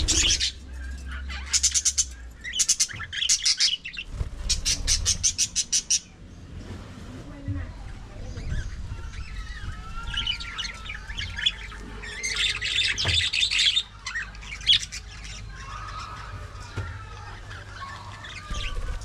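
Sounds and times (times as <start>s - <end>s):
budgerigars chattering: 0.0s - 6.0s.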